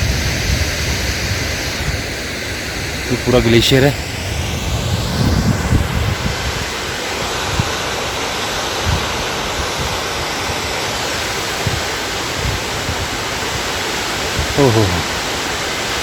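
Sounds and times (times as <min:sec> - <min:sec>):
wind bumps on microphone: 0:00.0 - 0:02.2, 0:04.1 - 0:07.8, 0:08.8 - 0:10.0, 0:11.6 - 0:13.7, 0:14.3 - 0:15.1
waterfall rushing: 0:00.7 - 0:16.0.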